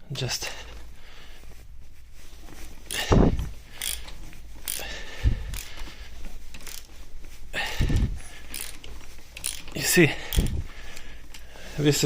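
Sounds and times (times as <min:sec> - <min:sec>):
metallic clicks of tools: 0:03.8 - 0:04.8, 0:05.5 - 0:05.8, 0:06.5 - 0:06.9, 0:08.5 - 0:11.4.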